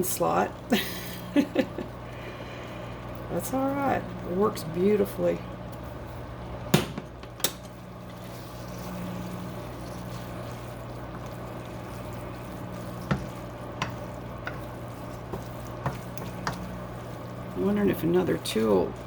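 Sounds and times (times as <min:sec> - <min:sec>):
microwave humming: 0:00.0 - 0:19.0
noodles being stirred: 0:00.0 - 0:19.0.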